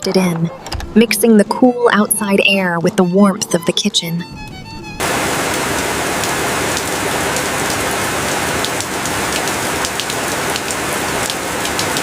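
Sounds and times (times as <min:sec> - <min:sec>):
rain on a tin roof: 0:05.0 - 0:12.0.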